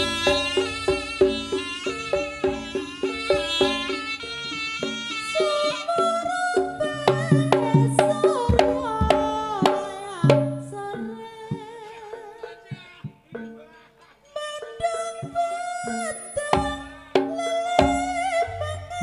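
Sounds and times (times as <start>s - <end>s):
wavering melody line: 0.0s - 12.6s, 14.4s - 19.0s
hand drum strokes: 0.0s - 19.0s.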